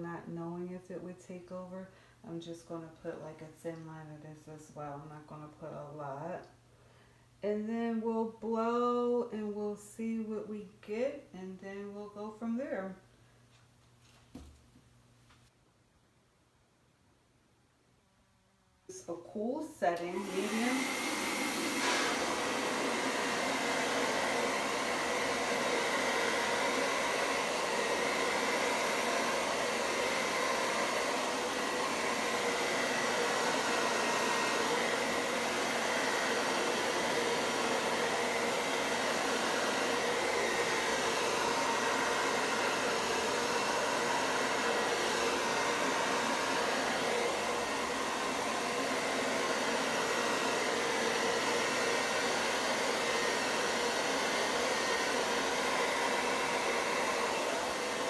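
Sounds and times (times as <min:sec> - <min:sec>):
hair dryer running: 0:19.8 - 0:58.0.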